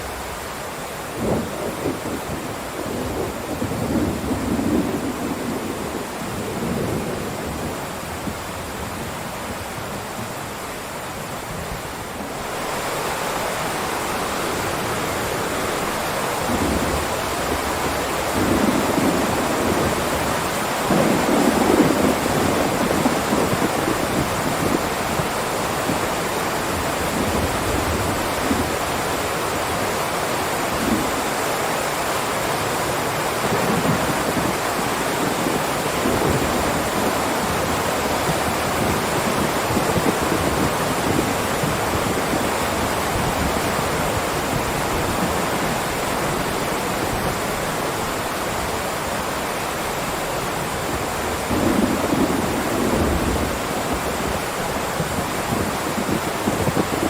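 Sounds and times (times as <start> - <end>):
heavy rain: 0.0 - 57.0
thunder rumbling: 1.1 - 9.9, 13.7 - 26.1, 33.4 - 48.0, 50.3 - 57.0.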